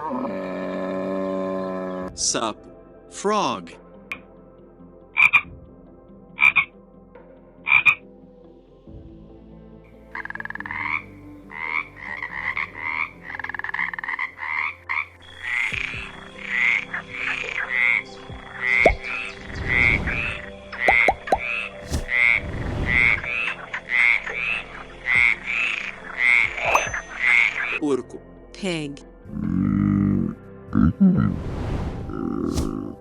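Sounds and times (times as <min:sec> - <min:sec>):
frogs croaking: 0:05.1 - 0:05.5, 0:06.4 - 0:06.7, 0:07.6 - 0:08.1, 0:10.0 - 0:27.8.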